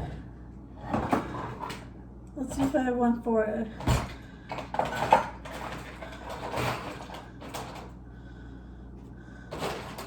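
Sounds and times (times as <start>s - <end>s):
utensils clattering in drawer: 3.8s - 7.9s, 9.5s - 10.0s.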